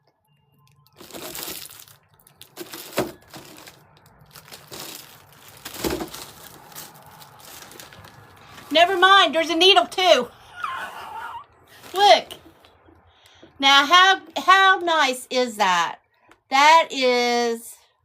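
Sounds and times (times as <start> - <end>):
packaging crinkling and rustling: 0.8 - 9.3, 11.7 - 12.6.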